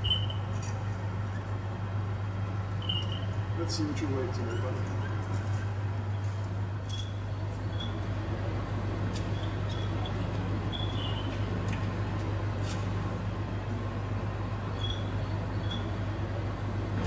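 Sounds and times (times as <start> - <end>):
low mechanical hum: 0.0 - 17.0
faint high chirps: 2.8 - 3.4.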